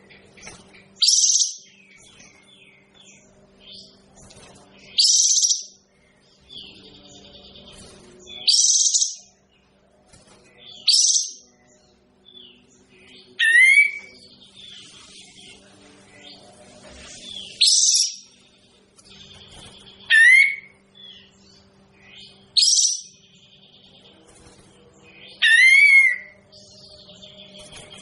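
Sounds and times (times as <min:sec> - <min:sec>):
steady low hum: 0:00.0 - 0:28.0
songbird high-pitched song bursts: 0:04.8 - 0:05.8, 0:06.5 - 0:09.3, 0:10.7 - 0:11.6, 0:12.2 - 0:18.6, 0:19.6 - 0:21.4, 0:22.0 - 0:24.0.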